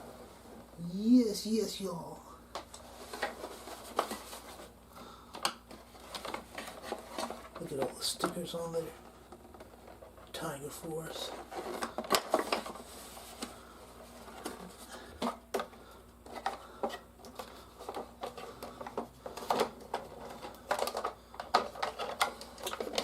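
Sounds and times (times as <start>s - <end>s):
plastic toys clacking: 17.8s - 23.0s.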